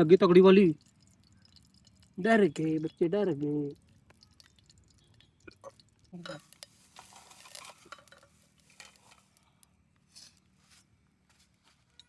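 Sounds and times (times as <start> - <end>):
utensils scraping metal pot: 6.2 - 9.4.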